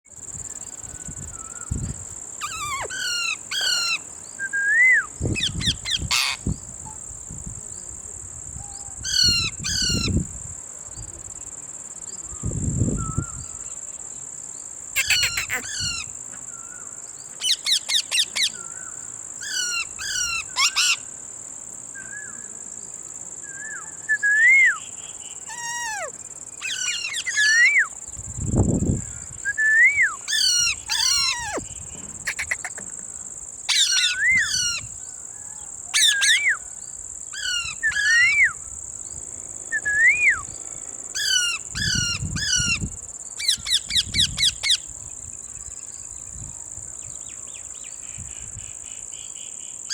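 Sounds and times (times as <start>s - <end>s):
parakeets screeching: 2.4s - 4.0s, 5.4s - 6.4s, 9.1s - 10.2s, 15.0s - 16.1s, 19.4s - 21.0s, 25.5s - 27.7s, 30.3s - 31.6s, 32.2s - 32.8s, 33.7s - 34.9s, 37.4s - 38.4s, 41.2s - 42.8s
parakeet whistles: 15.0s - 15.8s.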